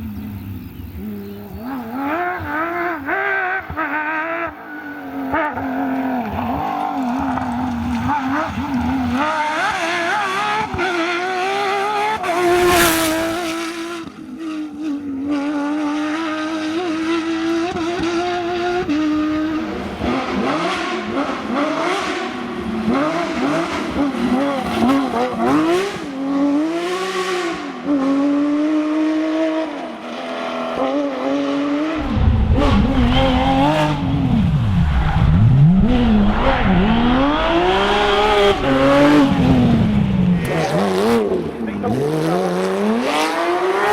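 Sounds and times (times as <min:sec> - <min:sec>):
rally car engines revving: 0:00.0 - 0:43.9
deep rumble: 0:32.0 - 0:41.2.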